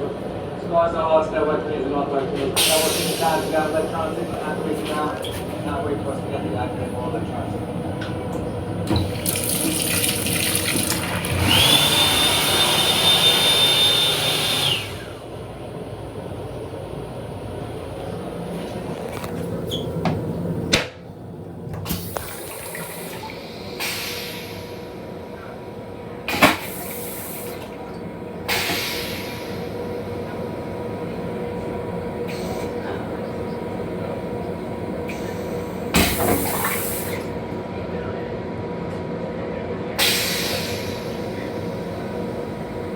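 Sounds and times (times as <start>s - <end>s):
toilet flushing: 2.6s - 20.8s, 21.7s - 37.5s, 40.0s - 42.9s.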